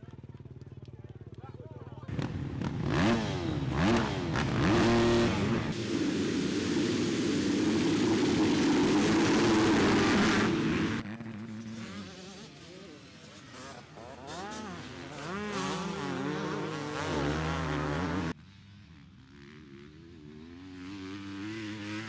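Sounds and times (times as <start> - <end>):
motocross bike engines revving: 1.2 - 18.4, 19.9 - 22.0.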